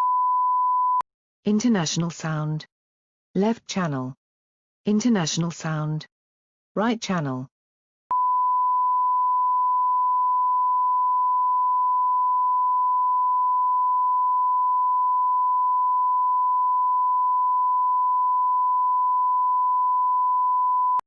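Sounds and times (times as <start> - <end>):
pure test tone: 8.1 - 21.0.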